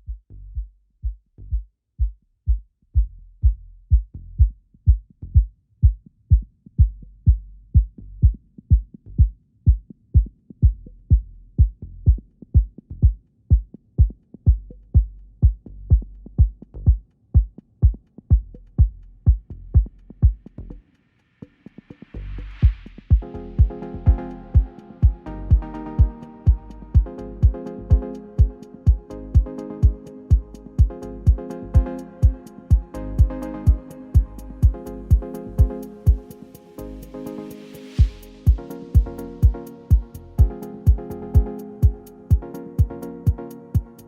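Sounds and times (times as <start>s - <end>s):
drum machine kick drum: 0.0s - 20.8s, 22.6s - 36.4s, 38.0s - 44.0s
sustained low bass line: 14.5s - 17.0s, 18.3s - 20.8s, 22.1s - 44.0s.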